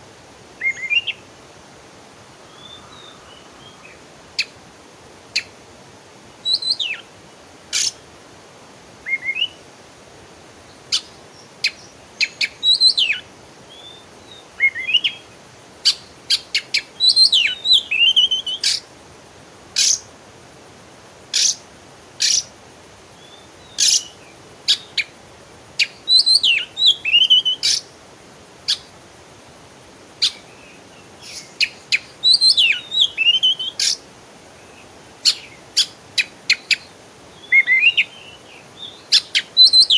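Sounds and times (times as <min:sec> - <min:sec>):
faint steady hiss: 0:00.0 - 0:39.9
songbird chips and twittering: 0:23.2 - 0:25.1, 0:25.8 - 0:27.9, 0:30.2 - 0:34.0, 0:34.6 - 0:39.9.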